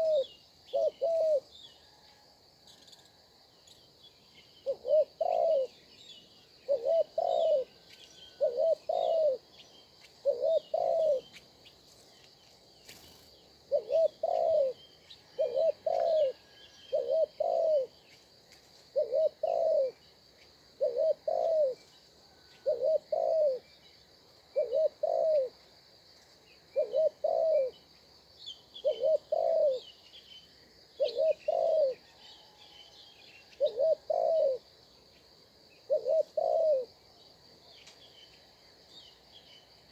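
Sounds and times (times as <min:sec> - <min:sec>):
small birds chirping: 0:00.0 - 0:02.0, 0:02.6 - 0:39.9
high insect buzz: 0:10.0 - 0:14.8.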